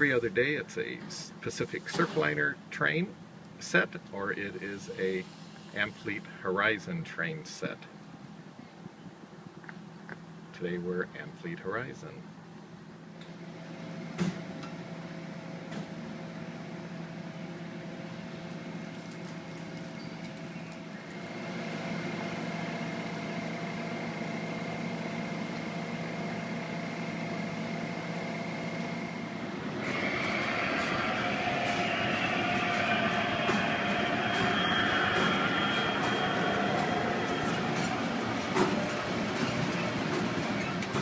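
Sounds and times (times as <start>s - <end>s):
diesel locomotive engine hum: 16.3s - 41.0s
rough bright rumble: 29.7s - 40.0s.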